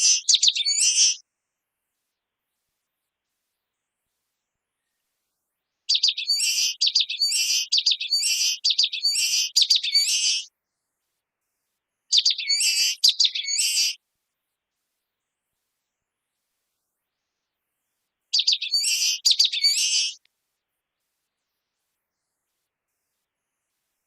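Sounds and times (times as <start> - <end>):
bird singing high repeated notes: 0.0 - 1.2, 5.9 - 10.5, 12.1 - 14.0, 18.3 - 20.2.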